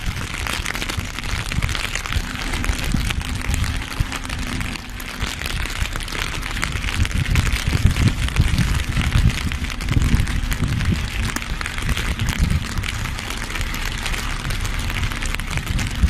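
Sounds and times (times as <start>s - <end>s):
dense crackling noise: 0.0s - 16.0s
heavy truck rumbling: 0.0s - 16.0s.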